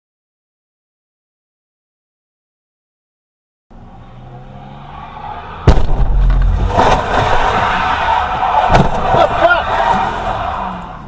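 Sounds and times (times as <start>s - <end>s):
car engine and road noise: 3.7s - 11.0s
loud crash impact: 5.6s - 7.9s.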